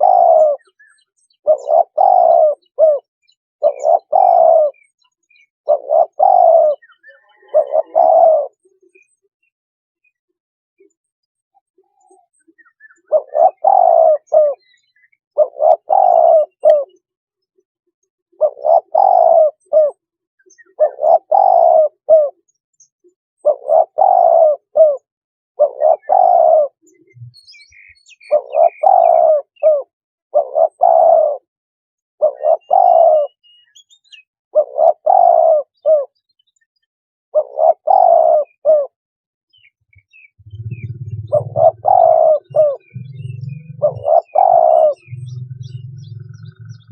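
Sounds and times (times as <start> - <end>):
dove cooing: 0.0 - 0.8, 1.4 - 4.9, 5.6 - 8.7, 13.0 - 14.7, 15.3 - 17.0, 18.4 - 20.0, 20.6 - 22.4, 23.4 - 31.5, 32.2 - 33.4, 34.6 - 36.2, 37.4 - 39.0, 39.9 - 46.9.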